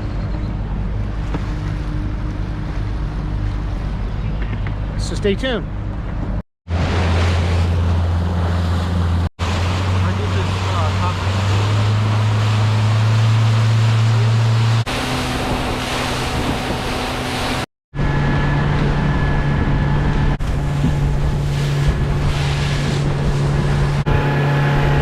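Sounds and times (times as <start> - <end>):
boat motor droning: 0.0 - 25.0
water noise: 0.0 - 25.0
wind on microphone: 11.3 - 25.0.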